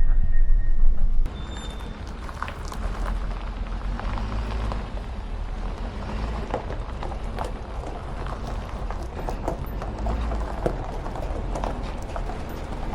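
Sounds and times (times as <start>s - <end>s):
truck engine and road noise: 0.0s - 12.9s
light rattles and knocks: 5.7s - 12.9s.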